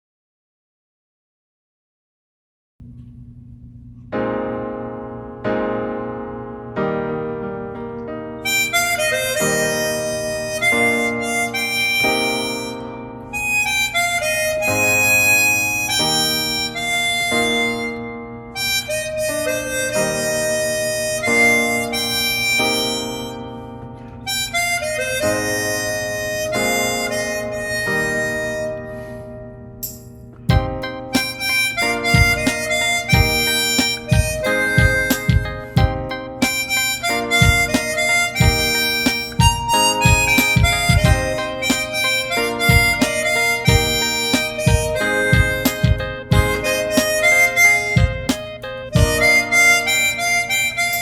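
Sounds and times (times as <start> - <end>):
harmonica melody: 8.3 - 51.0.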